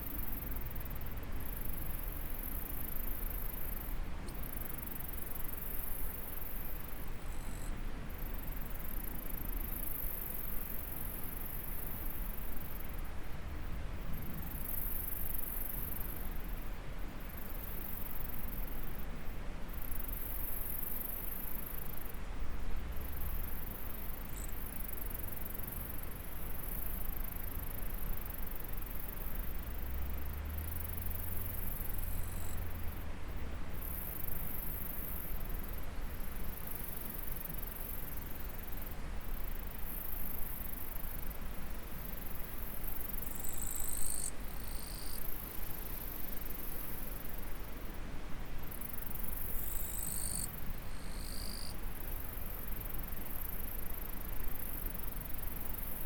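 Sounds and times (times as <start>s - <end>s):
insects trilling: 43.0s - 46.9s, 48.8s - 51.8s.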